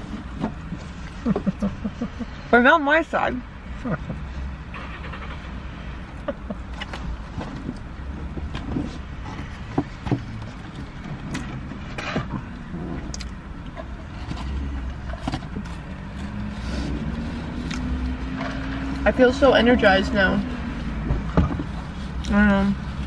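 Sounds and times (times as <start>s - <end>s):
car idling with air conditioning: 0.0s - 17.8s
wet chewing and mouth clicks: 12.5s - 14.4s, 17.1s - 18.3s.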